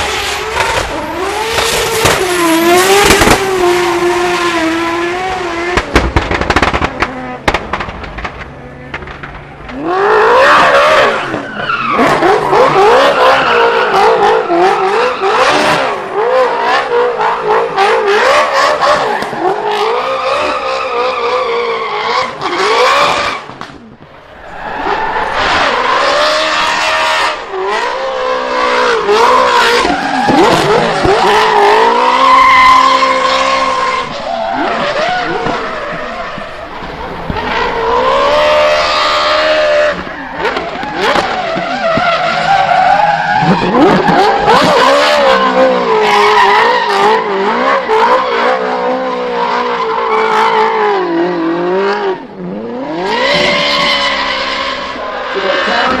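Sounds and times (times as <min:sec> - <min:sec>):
car engine revving hard: 0:00.0 - 0:07.4, 0:09.7 - 0:23.5, 0:24.2 - 0:56.0
tyres screeching: 0:24.2 - 0:47.2.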